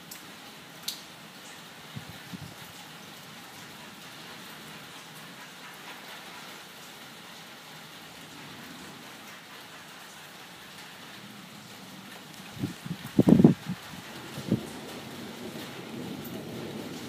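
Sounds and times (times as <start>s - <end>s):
raindrop ticks: 0.0s - 1.6s
steady rain hiss: 0.0s - 17.0s.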